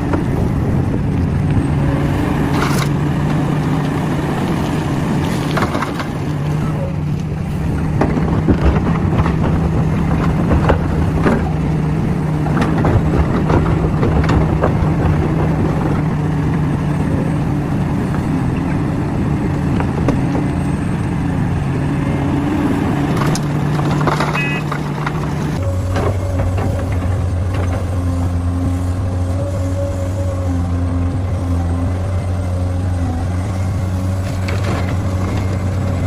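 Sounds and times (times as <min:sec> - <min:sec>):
heavy diesel engine running: 0:00.0 - 0:36.0
knocks and clanks: 0:07.8 - 0:11.6, 0:12.4 - 0:16.0, 0:23.1 - 0:28.1.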